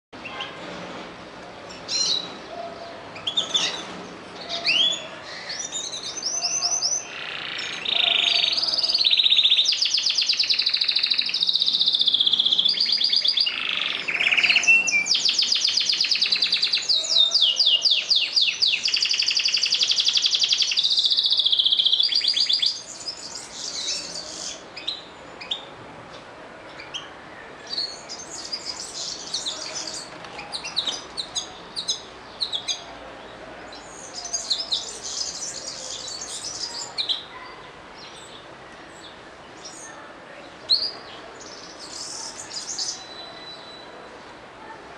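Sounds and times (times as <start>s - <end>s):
canary trilling song: 1.7s - 25.7s, 27.7s - 32.9s, 40.7s - 44.0s
canary chirping: 3.2s - 25.7s, 27.8s - 32.8s, 41.8s - 43.9s.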